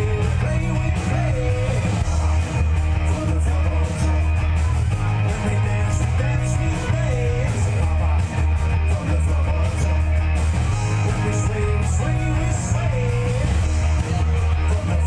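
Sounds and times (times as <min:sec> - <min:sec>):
heavy bass line: 0:00.0 - 0:15.0
live rock band playing: 0:00.0 - 0:15.0.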